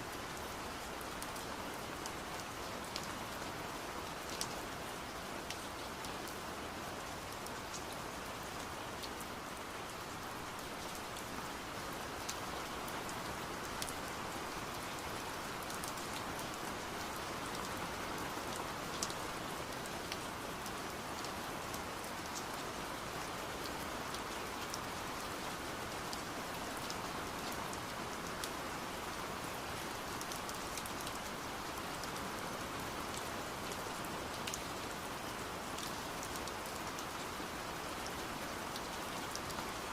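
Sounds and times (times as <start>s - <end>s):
steady rain rushing: 0.0s - 39.9s.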